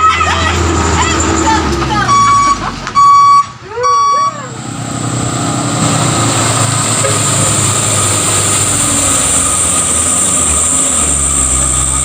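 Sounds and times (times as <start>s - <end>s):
truck engine rumble: 0.0s - 12.0s.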